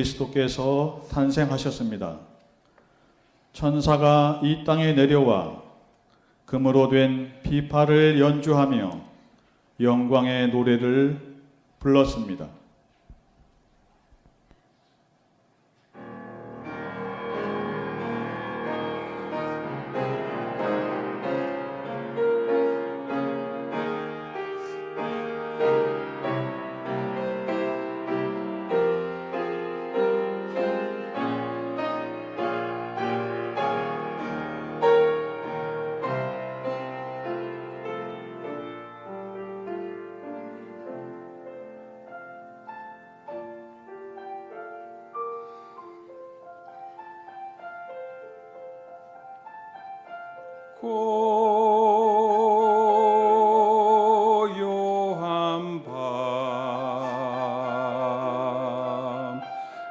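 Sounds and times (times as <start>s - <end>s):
piano playing: 15.9s - 59.9s.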